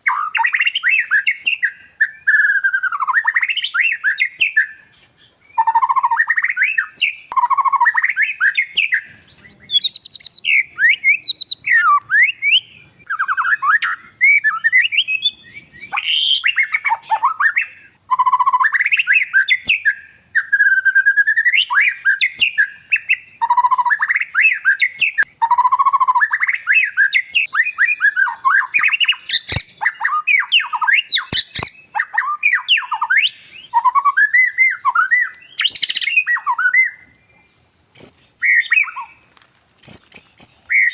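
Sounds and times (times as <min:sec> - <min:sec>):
bird singing whistled notes: 0:00.0 - 0:40.9
sharp clicks: 0:29.4 - 0:29.8, 0:31.3 - 0:31.8.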